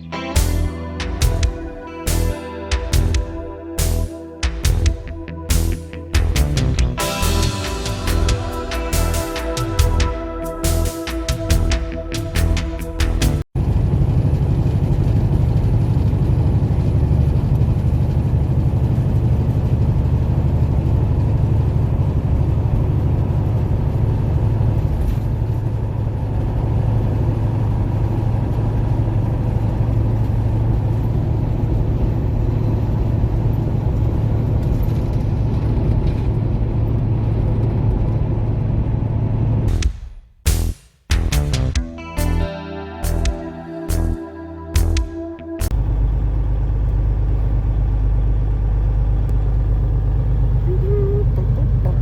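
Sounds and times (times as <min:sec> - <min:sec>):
truck engine drone: 0:00.0 - 0:52.0
road noise inside cab: 0:13.6 - 0:39.8, 0:45.7 - 0:52.0.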